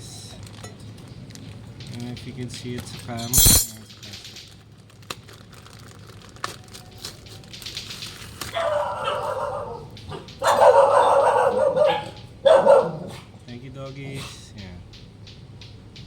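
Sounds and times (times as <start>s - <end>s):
dogs barking: 8.4s - 14.4s.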